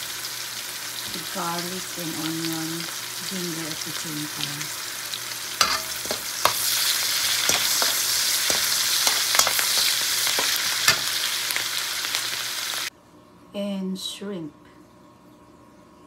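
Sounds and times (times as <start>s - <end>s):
food sizzling in hot oil: 0.0s - 12.9s
metal spatula scraping a pan: 5.6s - 11.3s.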